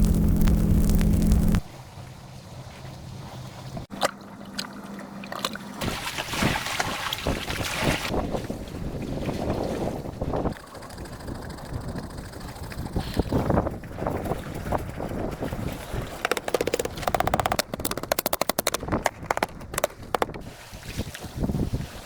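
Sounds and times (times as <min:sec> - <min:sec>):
low rumbling: 0:00.0 - 0:01.7
wind buffeting microphone: 0:08.1 - 0:16.3
rapid sharp clicking: 0:16.2 - 0:20.4.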